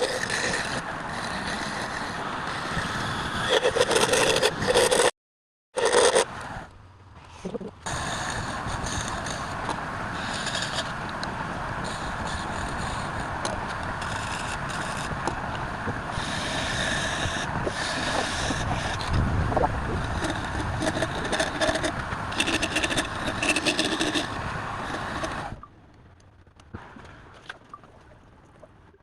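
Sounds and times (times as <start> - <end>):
turning tool scraping wood: 0.0 - 5.1, 5.8 - 6.3, 7.4 - 11.2, 11.8 - 25.6
wood lathe running: 16.2 - 19.1, 20.0 - 25.5.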